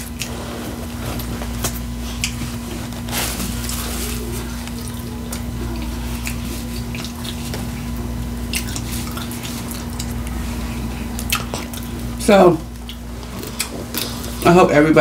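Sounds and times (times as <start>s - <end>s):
steady low hum: 0.0s - 15.0s
wet chewing clicks and smacks: 1.2s - 2.6s, 6.2s - 14.4s.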